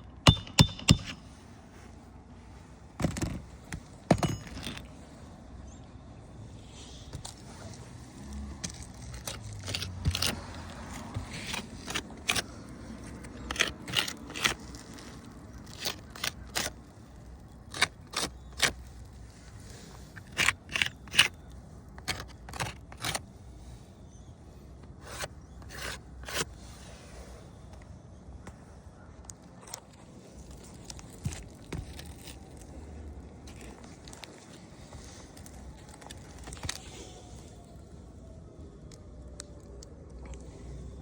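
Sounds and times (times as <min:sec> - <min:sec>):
irregular scrapes and clicks: 0:07.0 - 0:23.4, 0:24.7 - 0:28.6.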